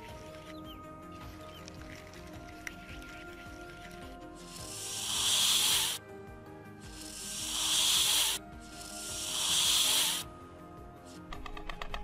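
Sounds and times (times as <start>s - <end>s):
soft background music: 0.0s - 12.0s
snake hissing: 4.2s - 6.0s, 6.7s - 10.4s.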